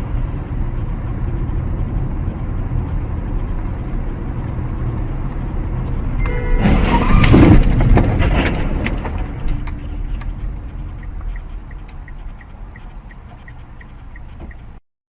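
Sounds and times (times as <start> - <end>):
vehicle crash: 6.2 - 10.7
debris crunching and clattering: 6.5 - 9.8
quick regular ticks: 8.7 - 14.8.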